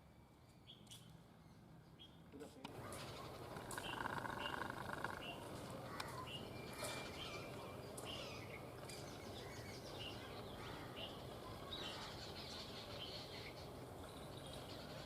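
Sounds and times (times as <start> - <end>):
low background noise: 0.0 - 15.0
high bird chirps: 3.2 - 5.5.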